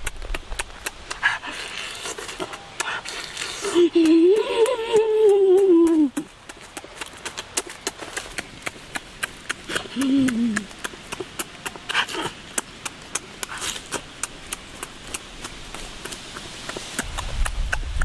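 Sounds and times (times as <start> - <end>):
person humming: 3.5 - 6.3, 9.7 - 10.9.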